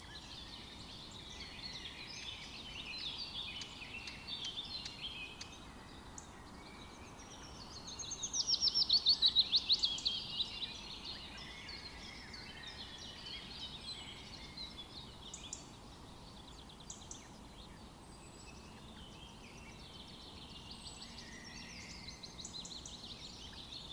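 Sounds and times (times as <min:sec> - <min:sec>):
songbirds singing and chirping: 0:00.0 - 0:23.9.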